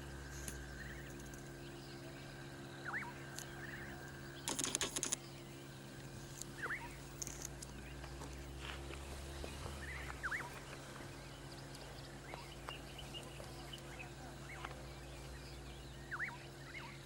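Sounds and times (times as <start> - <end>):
steady low hum: 0.0 - 17.0
crackling rustle: 6.0 - 11.1
bird sweeping call: 9.7 - 10.6.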